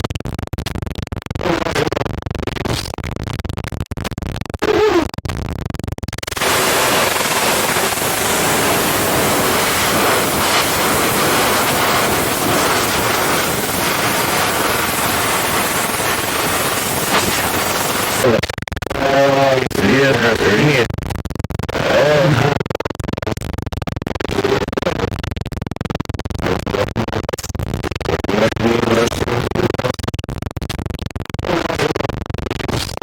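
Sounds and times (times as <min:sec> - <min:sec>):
choppy crackling noise: 0:00.0 - 0:33.0
tv static hiss: 0:06.3 - 0:18.3.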